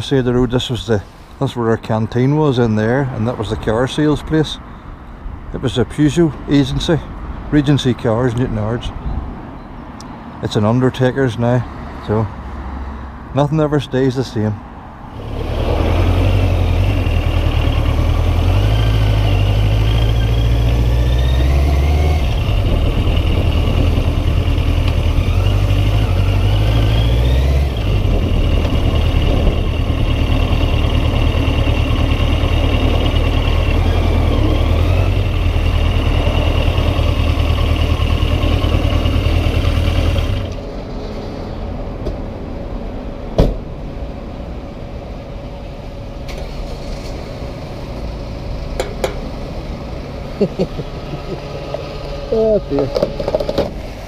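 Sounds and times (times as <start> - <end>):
motorcycle accelerating through gears: 15.1 - 40.7
wind buffeting microphone: 22.4 - 24.4, 27.8 - 30.1.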